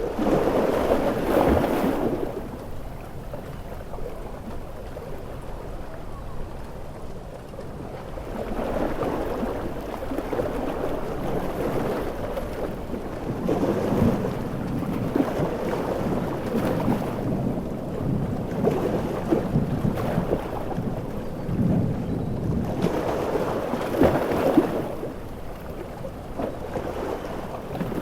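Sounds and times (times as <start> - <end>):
ocean waves breaking: 0.0 - 28.0.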